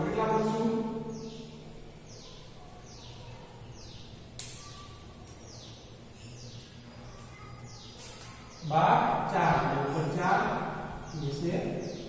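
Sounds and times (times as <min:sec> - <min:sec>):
sharp click: 0:04.4 - 0:05.4.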